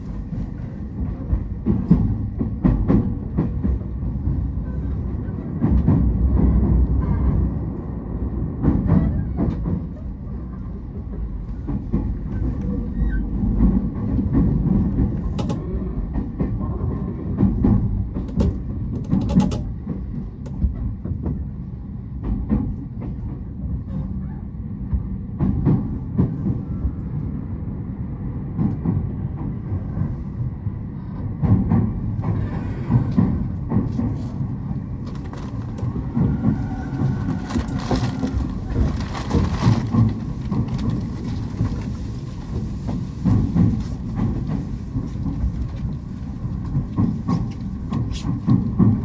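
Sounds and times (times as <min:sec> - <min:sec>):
train wheels rumbling on rails: 0:00.0 - 0:49.0
wheels clicking over rail joints: 0:11.0 - 0:16.6, 0:17.3 - 0:21.4, 0:31.4 - 0:49.0.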